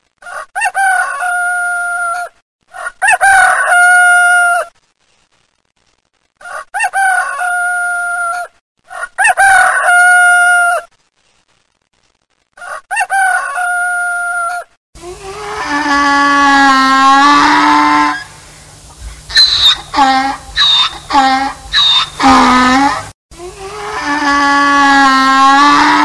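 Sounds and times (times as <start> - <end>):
rooster crowing: 0.2 - 4.7, 6.5 - 10.9, 12.6 - 14.7
lower bird call: 19.0 - 23.1.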